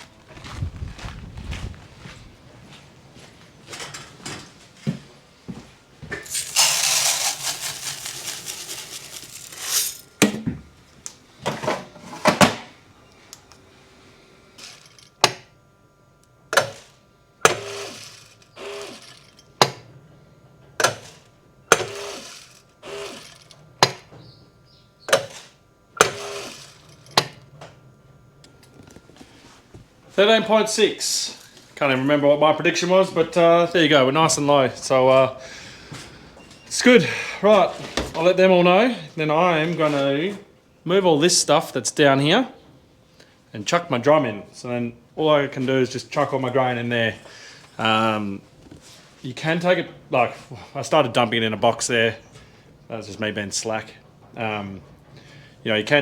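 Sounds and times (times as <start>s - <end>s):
grain being poured: 6.2s - 10.1s.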